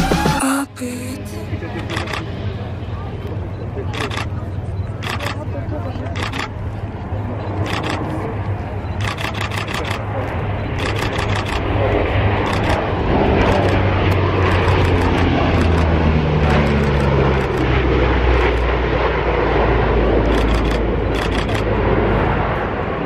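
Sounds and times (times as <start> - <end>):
aircraft flying past: 0.6 - 23.0
camera shutter clicks: 9.0 - 10.0, 10.8 - 11.6, 20.3 - 21.7.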